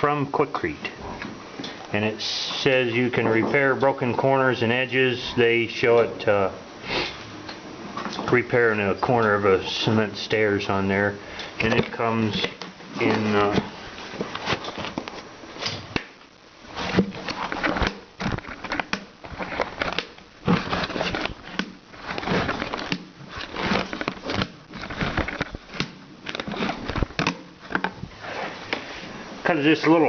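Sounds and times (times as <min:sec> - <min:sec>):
plastic bag crinkling: 0:16.7 - 0:28.0.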